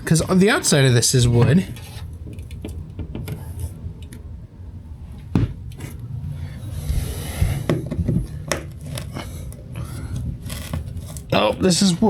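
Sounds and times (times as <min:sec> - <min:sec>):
clicks and knocks on wood panel: 0:02.2 - 0:03.4.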